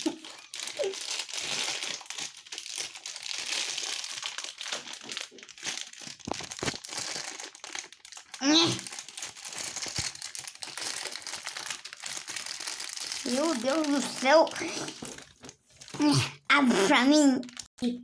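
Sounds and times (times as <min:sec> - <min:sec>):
toy wrapper crinkling: 0:00.0 - 0:16.0, 0:17.1 - 0:17.7.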